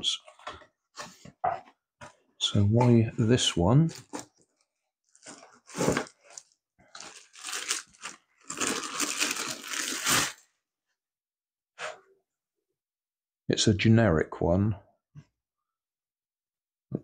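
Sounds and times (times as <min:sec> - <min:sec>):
packaging crinkling and rustling: 0:03.9 - 0:10.4.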